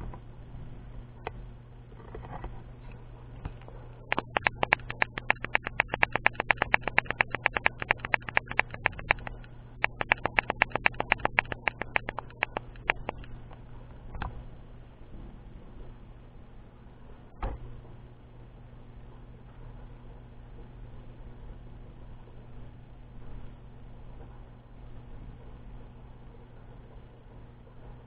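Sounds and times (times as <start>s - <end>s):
steady low hum: 0.0s - 28.0s
rapid sharp clicking: 4.0s - 13.6s.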